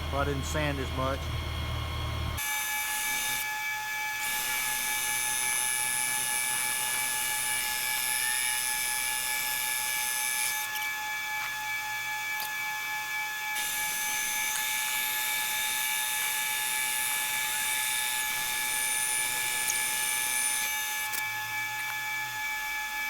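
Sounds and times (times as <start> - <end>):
metal lathe whining: 0.0 - 3.4.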